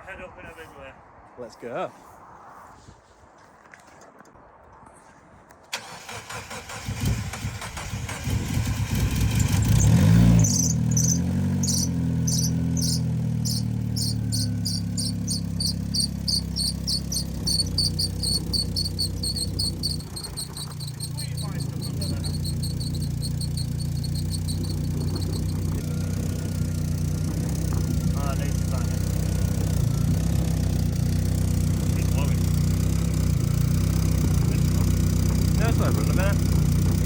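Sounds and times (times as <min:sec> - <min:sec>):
car engine starting and idling: 0:05.7 - 0:37.0
high-pitched rhythmic chirping: 0:10.4 - 0:25.8.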